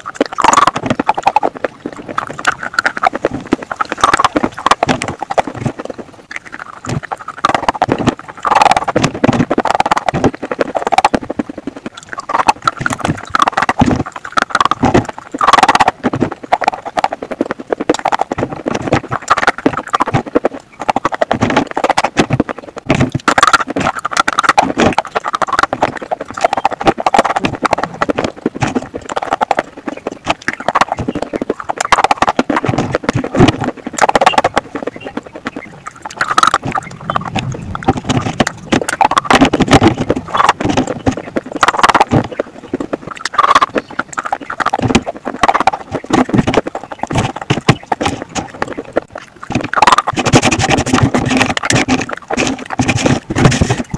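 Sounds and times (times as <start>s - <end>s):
crisp crunching chewing: 0.0s - 53.9s.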